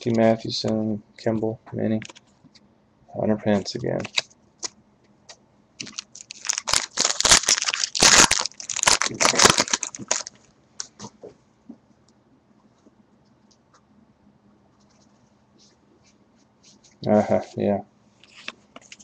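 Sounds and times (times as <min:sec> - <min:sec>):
plastic wrapper crinkling: 0:04.0 - 0:04.7, 0:05.8 - 0:11.1.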